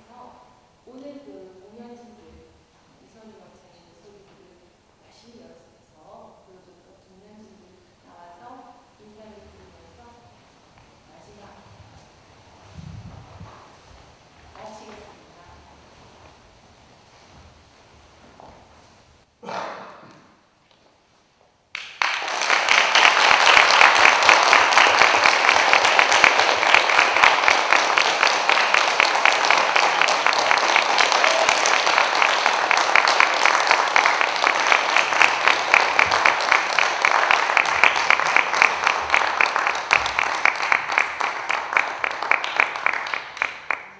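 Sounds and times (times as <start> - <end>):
audience applauding: 21.7 - 43.9.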